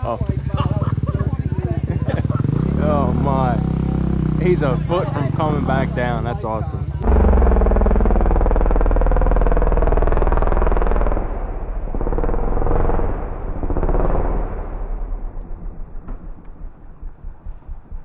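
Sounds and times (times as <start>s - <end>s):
engine revving under load: 2.1s - 16.5s.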